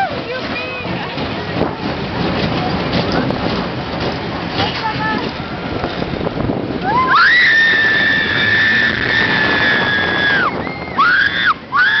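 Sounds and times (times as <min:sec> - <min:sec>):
rushing noise from ride: 0:00.0 - 0:12.0
roller coaster rider screaming: 0:06.7 - 0:12.0.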